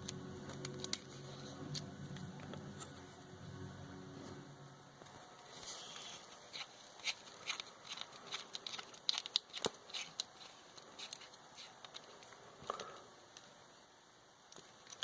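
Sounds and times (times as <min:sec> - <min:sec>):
small metal parts clicking and tapping: 0:07.1 - 0:12.4.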